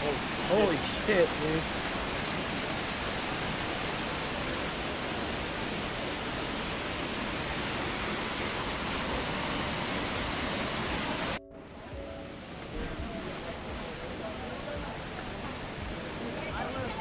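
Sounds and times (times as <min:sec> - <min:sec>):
waterfall roaring: 0:00.0 - 0:11.4, 0:12.3 - 0:17.0.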